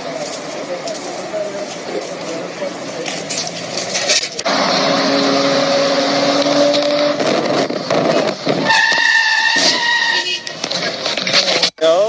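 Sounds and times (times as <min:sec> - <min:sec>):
road or wind noise: 0:00.0 - 0:12.0
higher engine note: 0:04.4 - 0:08.2.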